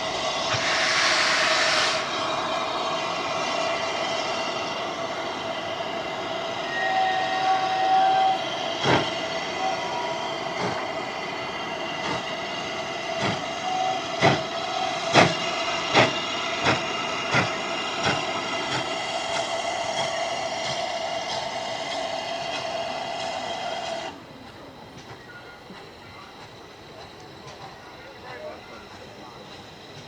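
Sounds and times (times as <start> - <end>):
train wheels clicking over rail joints: 8.6 - 9.6, 10.4 - 30.0.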